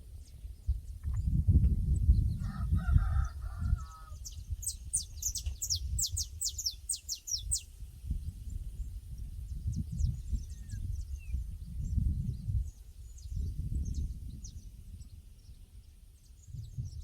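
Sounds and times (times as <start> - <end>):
rooster crowing: 2.4 - 4.2.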